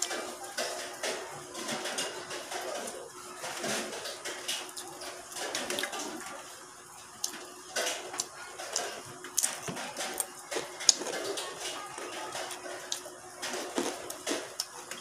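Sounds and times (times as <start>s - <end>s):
chewing and lip-smacking: 7.2s - 15.0s.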